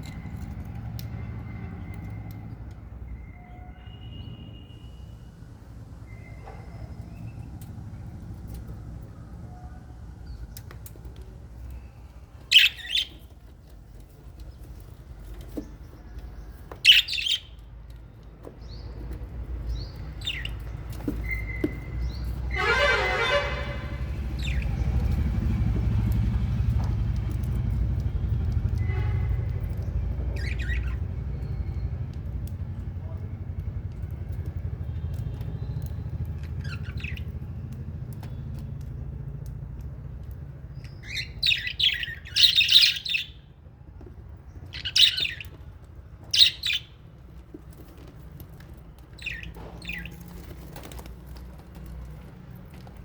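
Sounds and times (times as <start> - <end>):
parrots chirping and chattering: 11.6 - 18.0, 18.8 - 25.3, 30.3 - 31.1, 35.8 - 37.4, 40.7 - 43.4, 44.6 - 45.6, 46.2 - 47.0, 47.6 - 52.0
parrots shrieking: 12.5 - 13.2, 22.5 - 24.8, 41.0 - 43.3, 44.8 - 45.4, 46.3 - 46.9.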